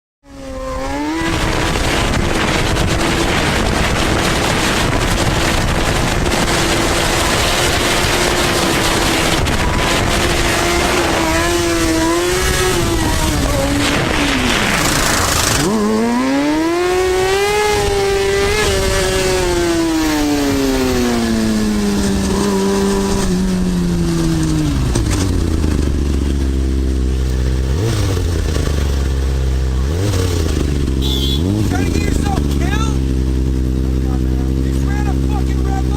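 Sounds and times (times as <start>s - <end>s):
motorcycle engine revving and idling: 0.2s - 35.9s
wind noise: 0.4s - 26.9s.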